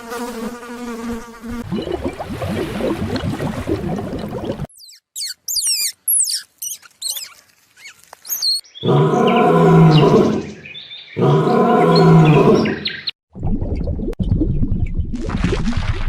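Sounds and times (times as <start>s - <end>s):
big cat roaring: 8.8s - 10.6s, 11.2s - 12.8s.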